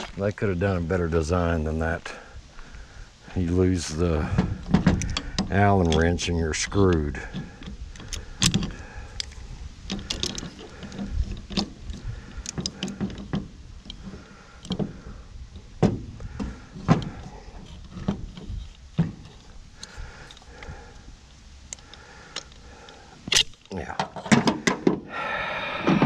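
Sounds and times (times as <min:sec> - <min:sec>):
metal clicks and knocks: 0:04.3 - 0:20.5, 0:23.3 - 0:25.0.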